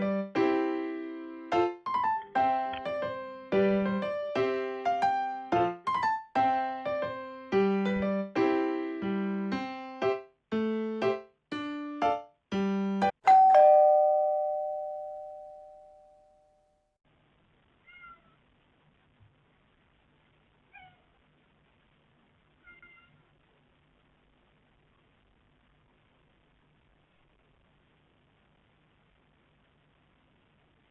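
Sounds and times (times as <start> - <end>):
electric piano melody: 0.0 - 15.9
kitten meowing faintly: 17.8 - 18.4, 20.7 - 21.2, 22.6 - 23.3.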